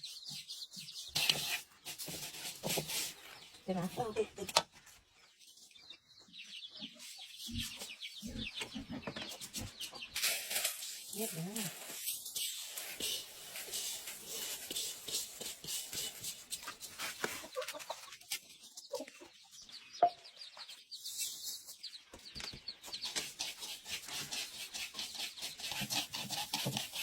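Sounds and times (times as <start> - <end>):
chickens clucking: 1.6 - 27.0.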